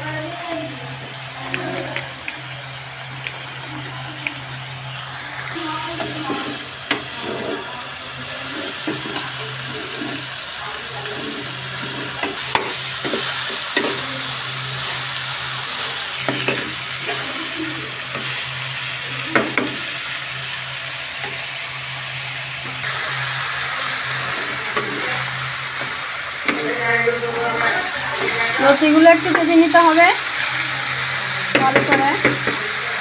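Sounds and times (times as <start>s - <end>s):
food sizzling in hot oil: 0.0s - 33.0s
spoon scraping and knocking pan: 8.4s - 10.3s, 11.1s - 14.1s, 31.5s - 32.6s.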